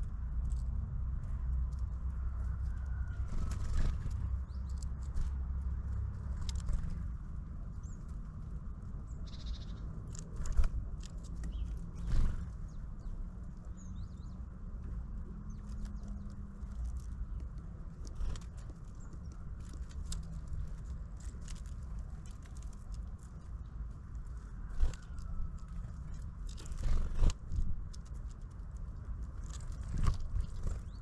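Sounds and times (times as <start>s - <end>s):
steady low rumble: 0.0s - 31.0s
small birds calling: 7.6s - 27.6s, 29.0s - 31.0s.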